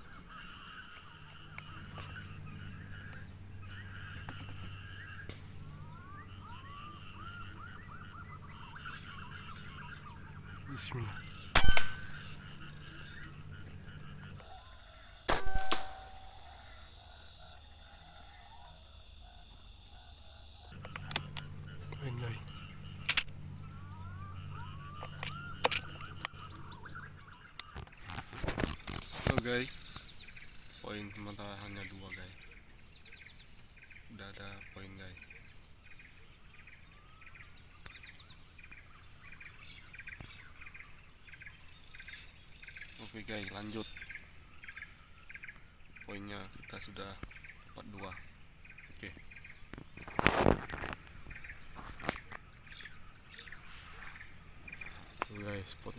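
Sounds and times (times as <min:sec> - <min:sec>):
rapid chirping trills: 0:00.0 - 0:14.5, 0:20.7 - 0:55.9
high insect drone: 0:00.0 - 0:55.9
air rifle shot crack: 0:11.5 - 0:12.4, 0:15.3 - 0:16.1
faint clicks: 0:20.8 - 0:22.1.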